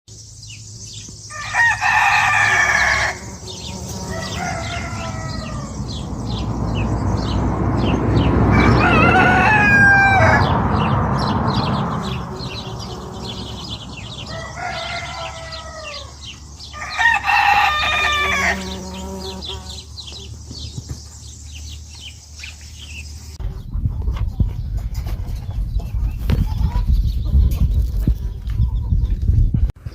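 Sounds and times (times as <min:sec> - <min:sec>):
roosters crowing: 0:01.2 - 0:20.8.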